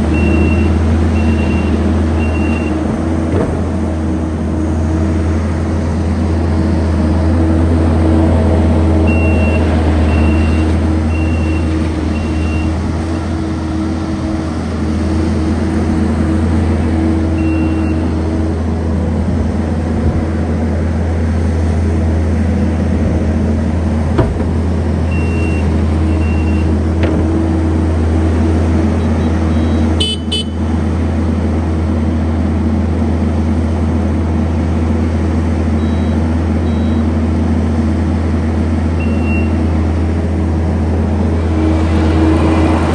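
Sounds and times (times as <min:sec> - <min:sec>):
diesel engine running: 0:00.0 - 0:42.9
backup alarm beeping: 0:25.1 - 0:26.7, 0:35.8 - 0:37.1.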